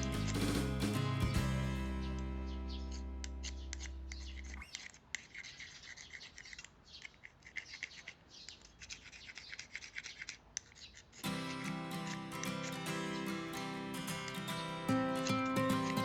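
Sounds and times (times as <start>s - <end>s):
background music: 0.0s - 3.8s, 11.3s - 16.0s
dry scratching and rubbing: 2.9s - 13.4s.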